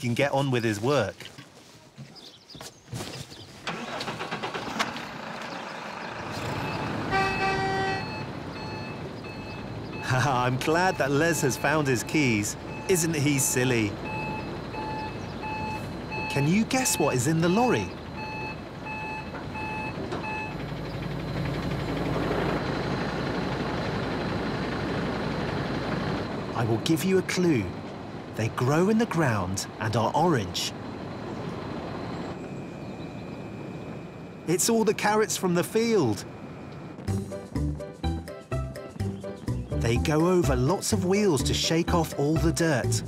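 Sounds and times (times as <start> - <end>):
tractor engine running: 3.4 - 43.0
reversing alarm beeping: 6.4 - 20.6, 31.1 - 34.5.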